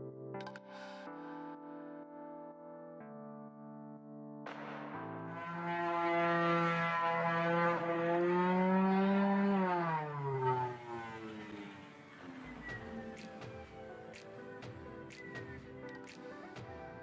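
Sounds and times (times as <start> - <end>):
sander winding down: 5.4 - 13.4
power sander humming: 5.6 - 13.3.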